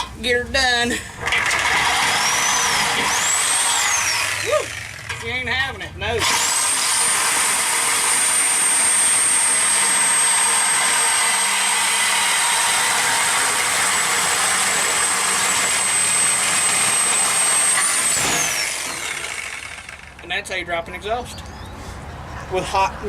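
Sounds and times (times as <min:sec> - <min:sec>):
power cutter whining: 0:01.2 - 0:05.4, 0:06.2 - 0:20.3
harsh metal cutting noise: 0:01.2 - 0:20.4.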